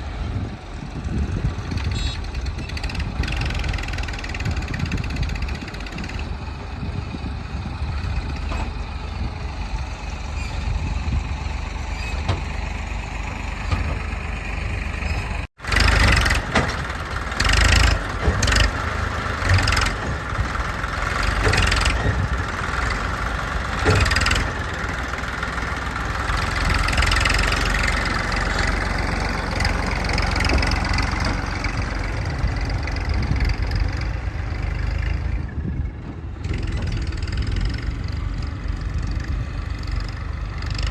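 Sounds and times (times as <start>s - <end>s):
diesel engine under load: 0.0s - 40.9s
metallic clanks: 11.8s - 32.1s.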